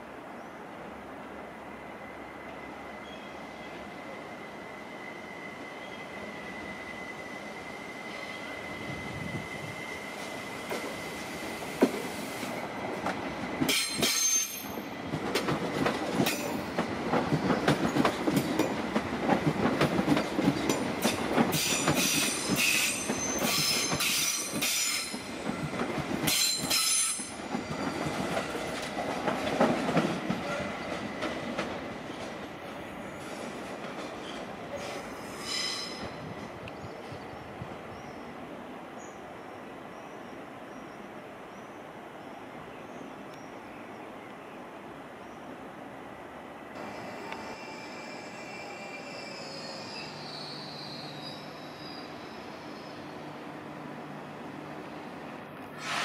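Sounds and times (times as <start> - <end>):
train rolling rumble: 0.0 - 42.7
train wheels squealing: 1.8 - 12.4, 13.4 - 15.0, 20.2 - 28.7, 32.7 - 37.2, 46.8 - 53.2.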